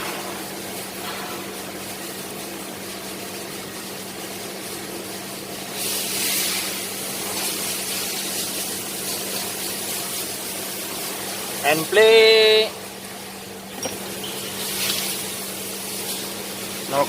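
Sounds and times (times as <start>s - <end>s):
loud hiss: 5.6s - 8.6s
machine hum: 6.7s - 17.0s.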